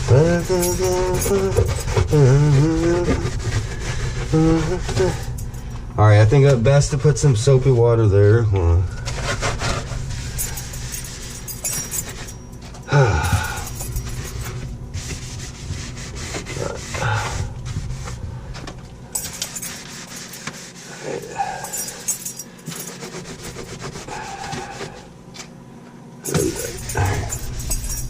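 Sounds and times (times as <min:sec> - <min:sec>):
scrubbing a surface: 0:00.0 - 0:05.4, 0:09.0 - 0:12.4, 0:13.4 - 0:18.5, 0:19.2 - 0:25.1, 0:26.3 - 0:28.0.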